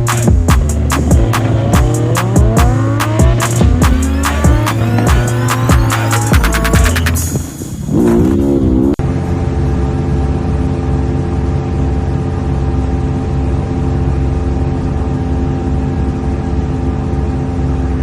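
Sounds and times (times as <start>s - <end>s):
car engine running: 0.0s - 18.0s.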